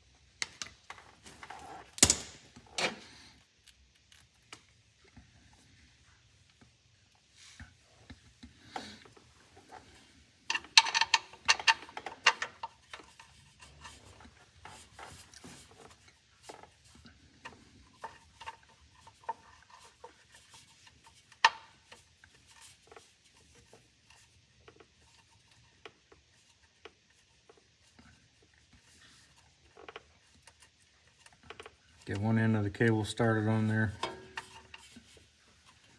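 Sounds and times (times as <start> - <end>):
wire brush scrubbing metal: 32.1 - 35.9.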